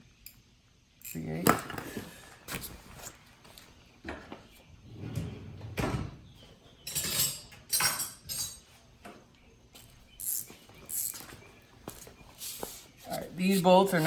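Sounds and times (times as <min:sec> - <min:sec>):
tools clinking against metal: 0:01.0 - 0:01.8, 0:06.8 - 0:08.7, 0:09.8 - 0:12.0.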